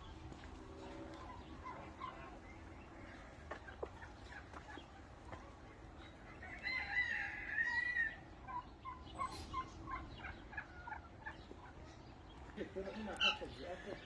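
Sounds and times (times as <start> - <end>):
poultry clucking: 0.0 - 14.0
rooster crowing: 6.4 - 8.2.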